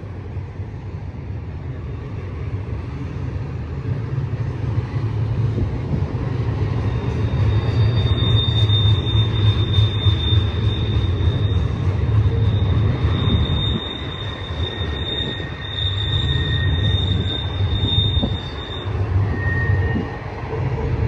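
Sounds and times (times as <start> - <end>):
diesel locomotives rumbling: 0.0 - 21.0
high-pitched train squeal: 6.3 - 21.0.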